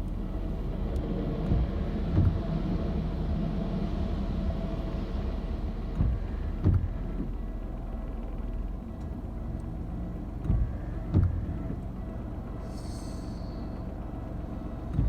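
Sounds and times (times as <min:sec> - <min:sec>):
electric train rumble: 0:00.0 - 0:15.0
dull thumps: 0:10.4 - 0:11.6.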